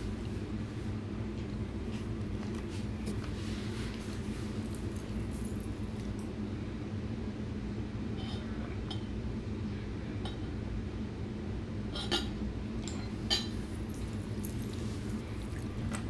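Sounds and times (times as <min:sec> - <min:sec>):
steady low hum: 0:00.0 - 0:16.0
tableware clicking and clinking: 0:12.0 - 0:14.8.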